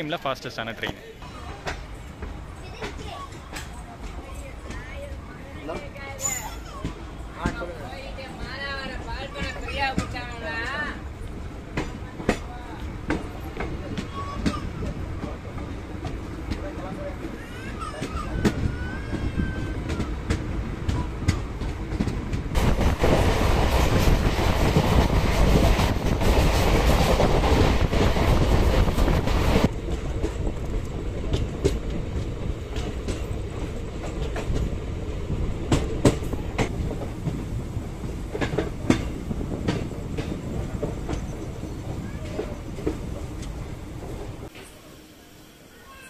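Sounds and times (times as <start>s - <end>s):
train wheel noise: 0.0s - 46.0s
wheels clacking over rail joints: 0.8s - 44.8s
wind rushing: 18.5s - 32.7s.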